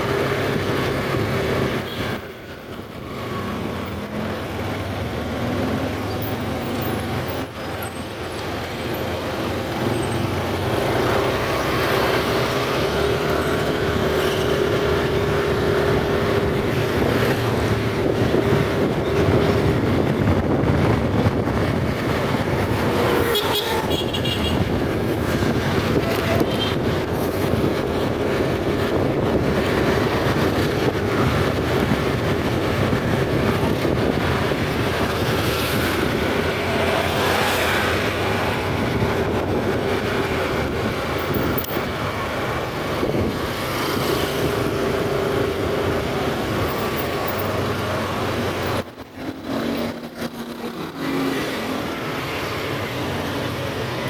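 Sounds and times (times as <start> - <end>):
motorcycle engine hum: 0.0 - 36.6
road and wind noise: 0.0 - 54.0.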